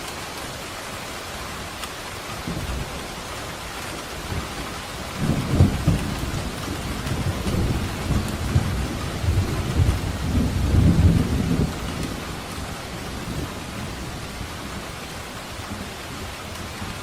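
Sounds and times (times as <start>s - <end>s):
rain hissing: 0.0s - 17.0s
thunder rumbling: 4.0s - 17.0s.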